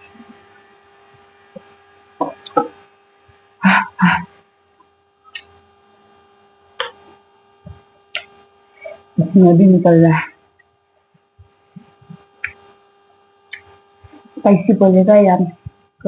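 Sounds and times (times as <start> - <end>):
faint electrical hum: 0.0 - 16.0
mouth noises while eating: 1.6 - 2.8, 3.6 - 4.3, 5.3 - 5.6, 6.8 - 9.4, 11.7 - 12.8, 13.5 - 14.6.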